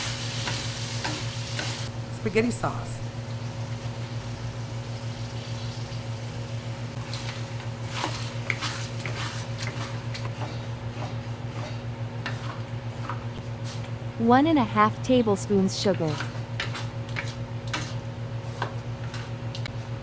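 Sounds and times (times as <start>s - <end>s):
spoon scraping in a pan: 0.0s - 1.9s, 7.0s - 14.0s, 15.8s - 19.4s
low electrical hum: 0.0s - 20.0s.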